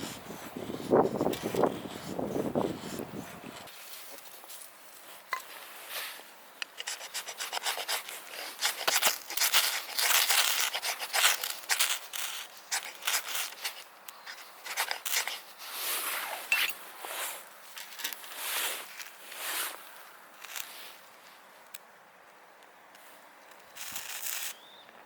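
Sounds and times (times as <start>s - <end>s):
rustling and rubbing: 0.0s - 19.9s.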